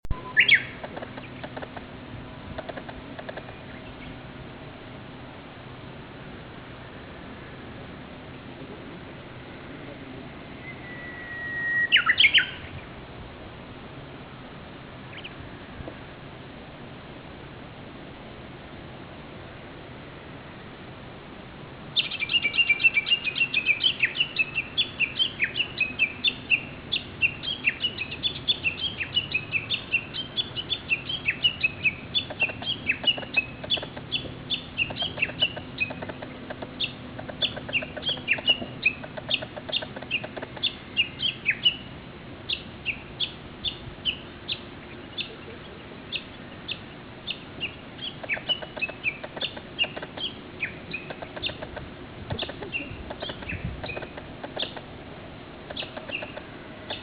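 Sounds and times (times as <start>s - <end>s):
warbler calling: 0.1s - 1.8s, 2.6s - 4.3s, 10.5s - 12.8s, 15.1s - 15.4s, 21.9s - 54.9s, 55.6s - 57.0s.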